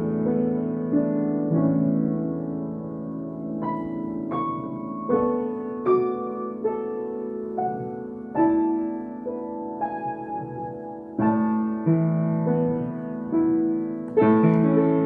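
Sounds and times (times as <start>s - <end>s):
solo piano melody: 0.0s - 15.0s.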